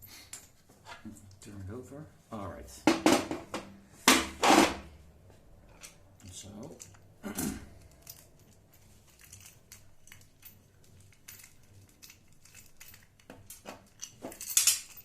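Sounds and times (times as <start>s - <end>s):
knock: 2.9s - 4.8s
hardware clicks and rustles: 2.9s - 15.0s.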